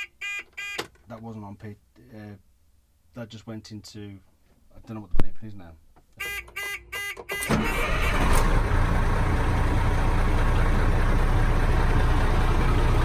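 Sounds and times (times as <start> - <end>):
diesel engine starting and idling: 7.3 - 13.0.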